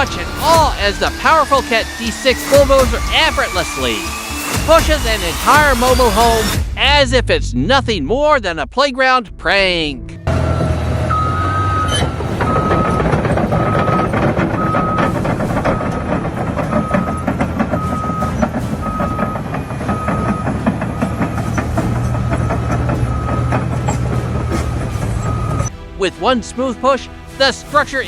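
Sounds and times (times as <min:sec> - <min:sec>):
bulldozer diesel engine clattering: 0:00.0 - 0:06.5, 0:10.2 - 0:25.7
reversing alarm beeping: 0:10.3 - 0:25.7.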